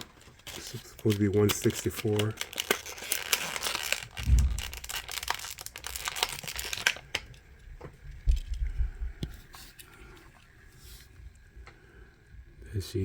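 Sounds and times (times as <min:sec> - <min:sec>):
packaging crinkling and tearing: 0:00.0 - 0:07.6
dull bumps: 0:04.2 - 0:05.0.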